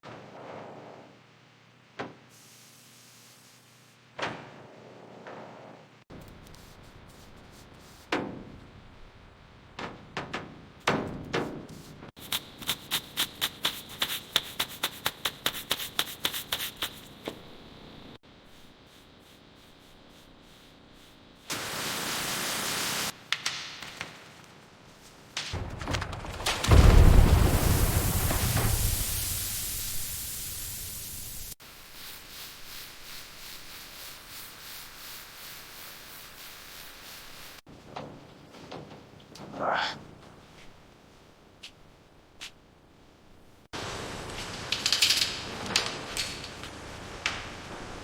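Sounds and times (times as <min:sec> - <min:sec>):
loud hiss with rumble: 0:02.3 - 0:04.0, 0:18.5 - 0:23.2, 0:25.6 - 0:37.6.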